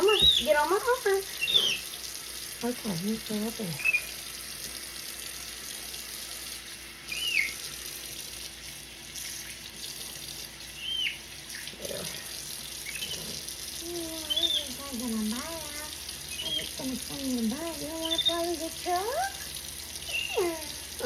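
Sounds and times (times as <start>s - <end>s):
tap water running into sink: 0.0s - 21.0s
monkey high whistling cries: 7.1s - 7.6s, 20.1s - 20.5s.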